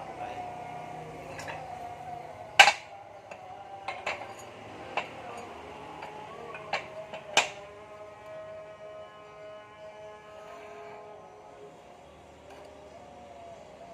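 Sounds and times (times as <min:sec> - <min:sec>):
metal tools clanking: 0:01.2 - 0:07.7.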